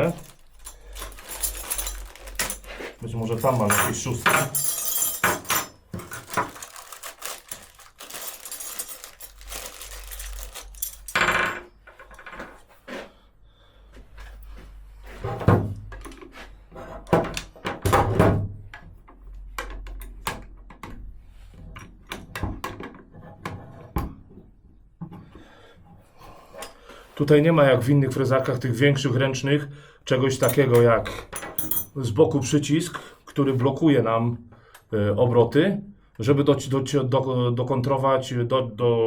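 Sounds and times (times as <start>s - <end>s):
metal tools clinking: 0.0s - 12.5s, 30.4s - 32.0s.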